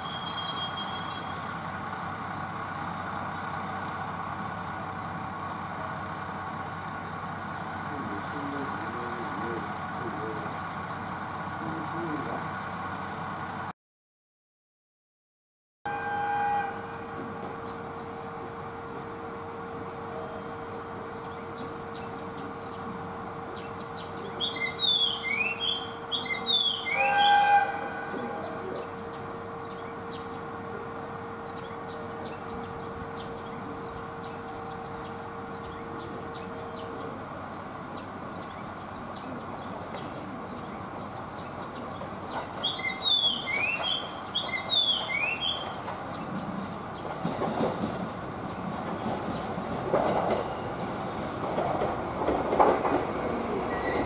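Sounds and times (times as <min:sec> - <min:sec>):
diesel railcar engine and wheels: 0:00.0 - 0:13.7, 0:15.9 - 0:54.0
songbird chirping: 0:19.4 - 0:54.0.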